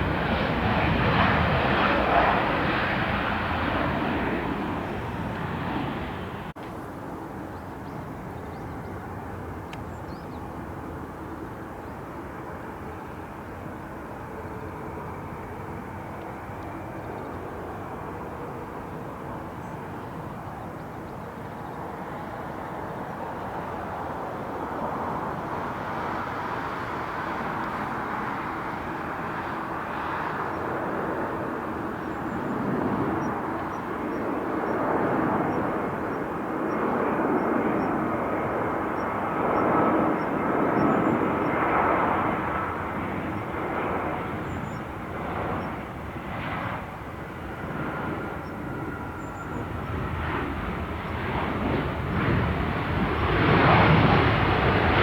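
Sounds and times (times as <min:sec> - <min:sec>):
jet airliner engines passing: 0:00.0 - 0:55.0.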